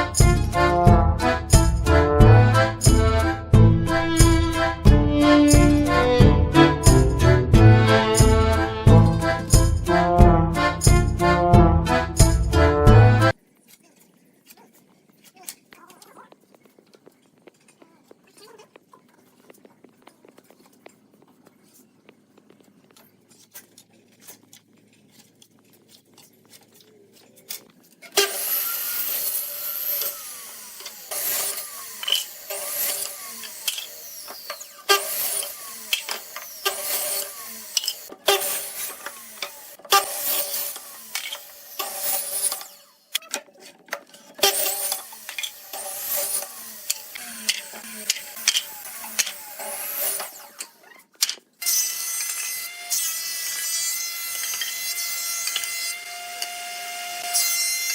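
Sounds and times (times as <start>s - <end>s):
tool cutting wood: 0.0s - 11.1s, 23.3s - 57.9s.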